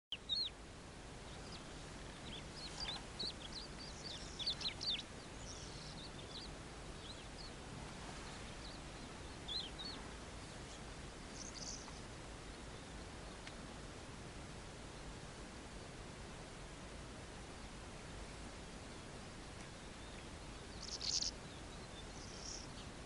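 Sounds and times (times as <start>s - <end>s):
birds chirping: 0.1s - 13.6s, 18.8s - 23.0s
background hiss: 0.1s - 23.0s.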